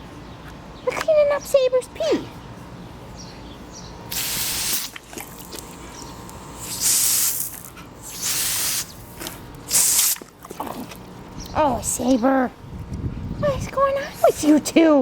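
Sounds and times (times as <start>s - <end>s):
garden hose spraying water: 4.1s - 11.0s.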